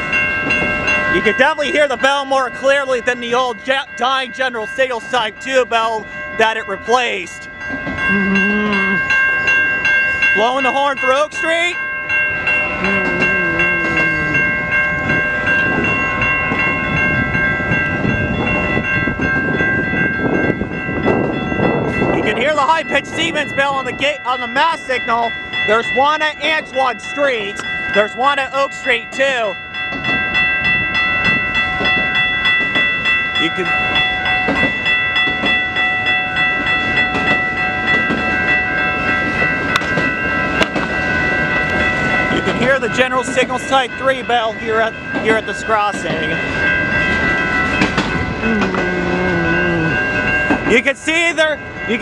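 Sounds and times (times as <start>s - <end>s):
electronic crossing bells ringing: 0.0s - 52.0s
freight train rumble and clatter: 0.0s - 52.0s
distant low train horn: 12.3s - 15.4s.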